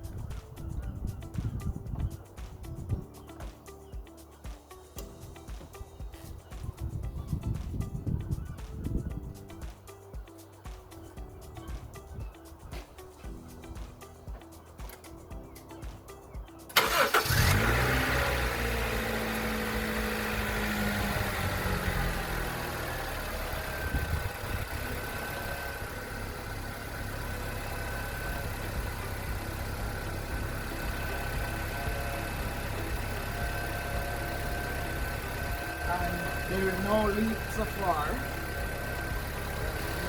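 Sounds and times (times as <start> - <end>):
car engine starting and idling: 16.6 - 40.0.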